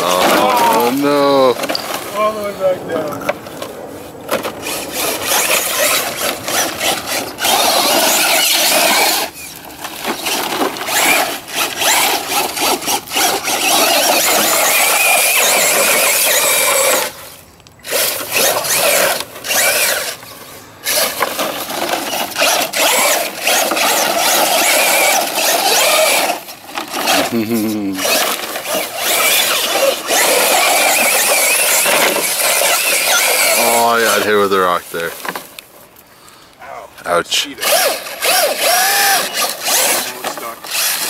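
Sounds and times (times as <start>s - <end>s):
wheels scrabbling on rock and dirt: 0.0s - 41.0s
electric motor whine: 37.6s - 41.0s.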